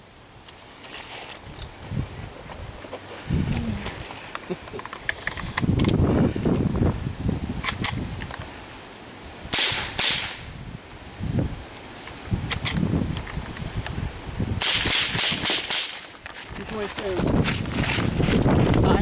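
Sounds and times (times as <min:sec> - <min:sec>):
rifle shots: 0:09.5 - 0:10.5, 0:14.6 - 0:16.0.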